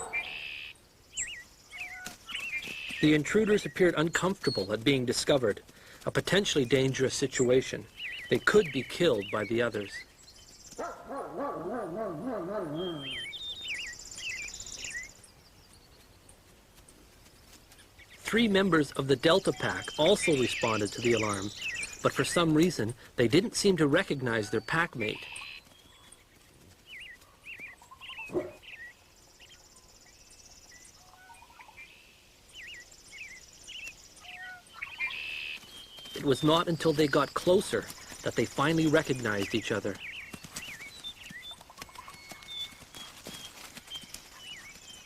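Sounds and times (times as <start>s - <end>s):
birds chirping: 0.0s - 45.0s
wolf howling: 11.0s - 13.3s.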